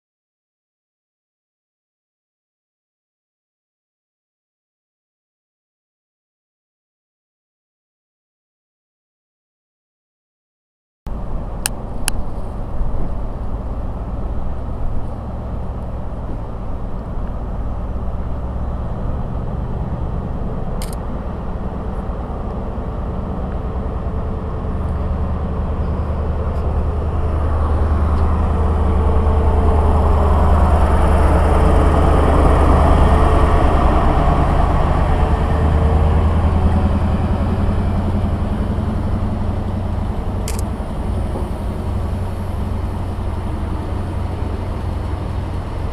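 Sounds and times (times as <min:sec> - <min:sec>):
low drone: 0:11.1 - 0:45.9
train passing: 0:11.1 - 0:45.9.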